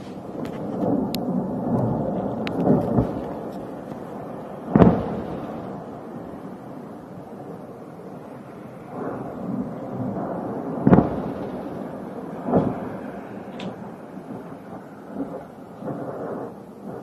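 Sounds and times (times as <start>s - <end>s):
loud booms: 0.0s - 6.6s, 8.8s - 17.0s
distant explosions rumbling: 0.0s - 17.0s.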